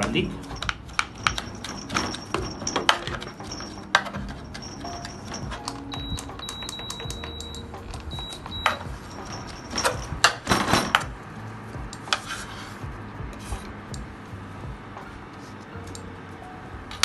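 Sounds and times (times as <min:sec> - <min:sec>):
utensils scraping and knocking: 0:00.0 - 0:05.6
utensils clicking: 0:00.0 - 0:11.0.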